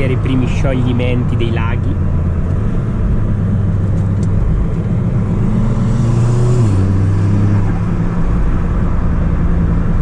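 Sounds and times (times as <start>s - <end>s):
car engine pulling away: 2.0s - 9.9s.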